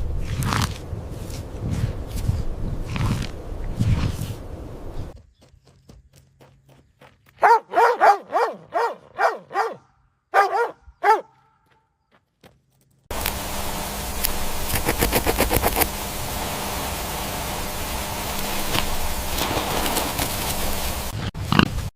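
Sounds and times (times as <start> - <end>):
steady hiss: 13.1 - 21.3
rapid clicks: 14.2 - 16.0.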